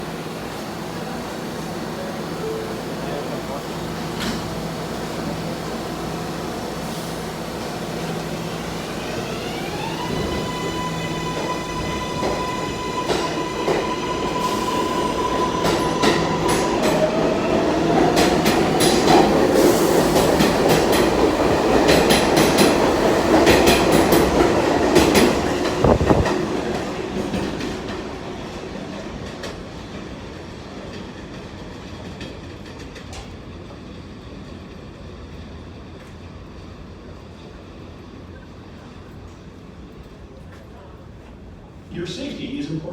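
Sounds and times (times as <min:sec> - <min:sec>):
subway train motor whine: 0:00.0 - 0:30.9.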